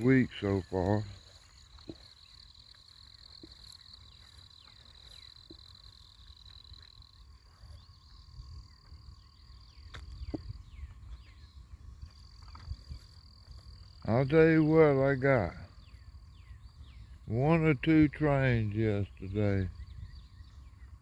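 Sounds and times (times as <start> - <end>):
insects trilling: 0.0 - 21.0
low rumble of background noise: 0.0 - 21.0.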